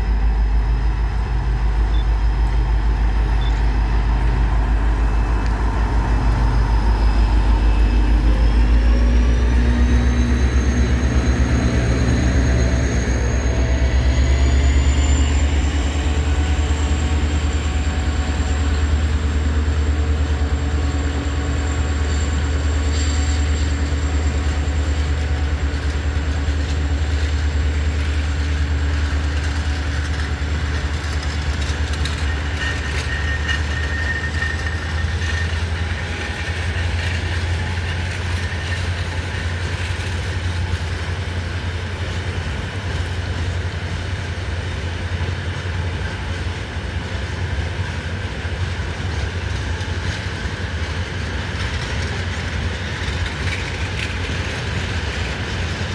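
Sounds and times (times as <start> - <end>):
high squeal: 0.0 - 41.3
freight train rumbling: 0.0 - 55.9.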